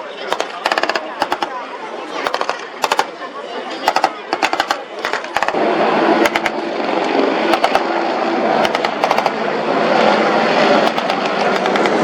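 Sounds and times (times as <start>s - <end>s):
engines droning: 0.0s - 12.0s
automatic gunfire bursts: 0.3s - 1.6s, 2.2s - 3.2s, 3.8s - 5.6s, 6.2s - 6.6s, 7.5s - 8.0s, 8.6s - 9.4s, 10.8s - 12.0s.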